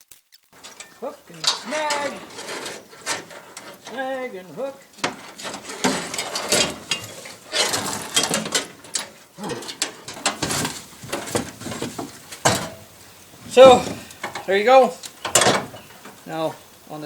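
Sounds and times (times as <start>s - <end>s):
metal clanking and scraping: 0.6s - 16.9s.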